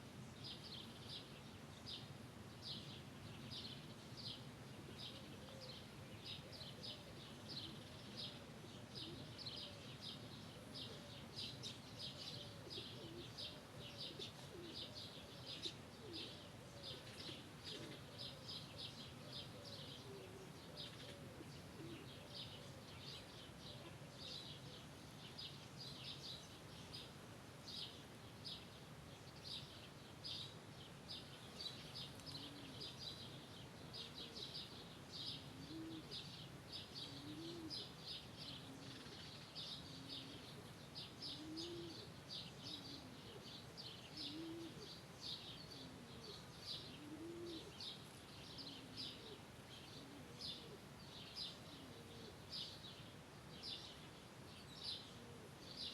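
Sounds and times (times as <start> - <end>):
small birds chirping: 0.2 - 55.9
dove cooing: 4.7 - 25.4, 31.4 - 53.0, 54.8 - 55.9.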